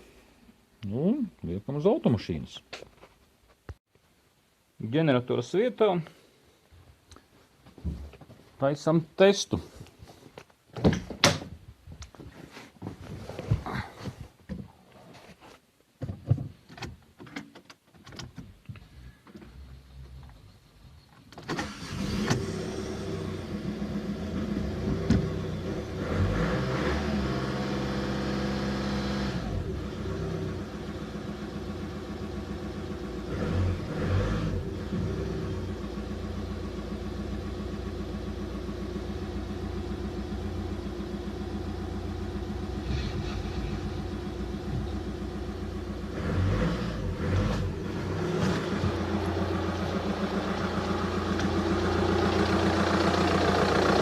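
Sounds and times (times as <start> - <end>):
car engine starting and revving: 21.5 - 54.0.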